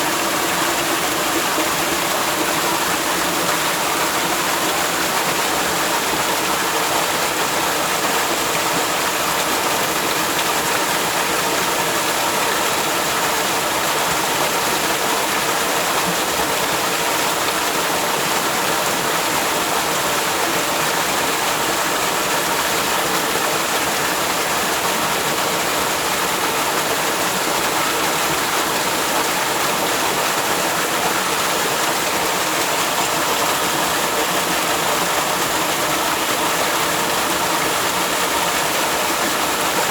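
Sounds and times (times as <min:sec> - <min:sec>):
waterfall rushing: 0:18.4 - 0:39.9.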